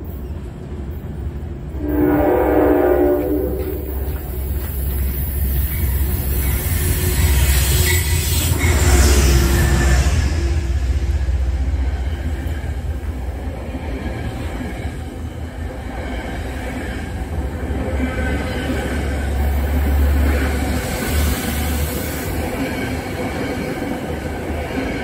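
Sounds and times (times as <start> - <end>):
train wheels rumbling on rail: 0.0 - 25.0
high wheel squeal: 4.8 - 10.4.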